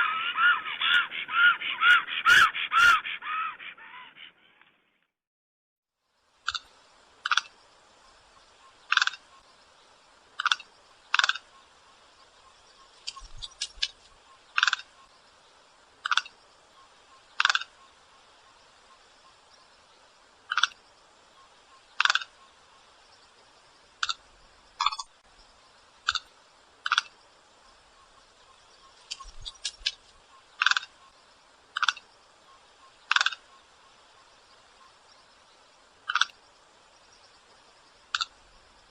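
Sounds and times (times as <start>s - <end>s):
bird giving sharp calls: 0.0s - 4.5s
steady low hiss: 6.0s - 38.9s.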